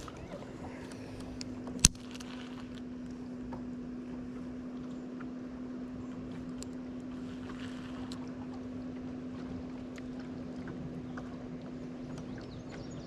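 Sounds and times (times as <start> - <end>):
electric motor humming: 0.0 - 10.6
small ticks and clicks: 0.9 - 3.7.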